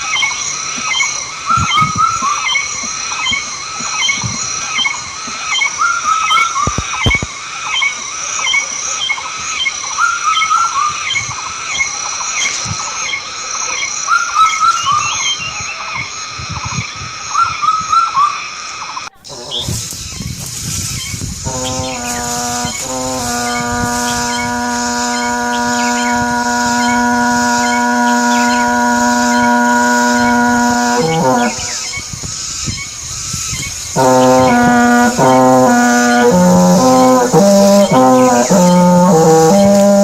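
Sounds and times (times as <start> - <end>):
steady high-pitched buzz: 21.4 - 32.2, 33.7 - 40.0.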